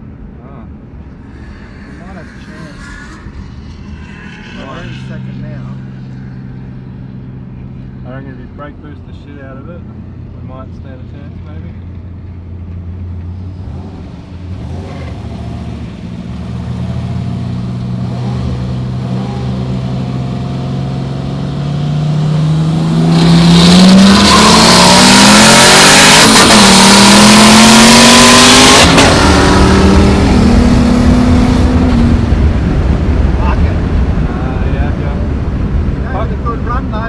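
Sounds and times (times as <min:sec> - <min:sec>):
car engine revving from inside cabin: 0:13.6 - 0:32.4.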